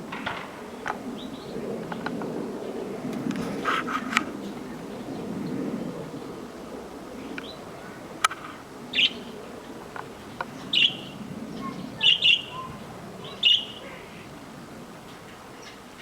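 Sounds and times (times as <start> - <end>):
canary chirping: 10.7 - 12.8, 13.4 - 13.9.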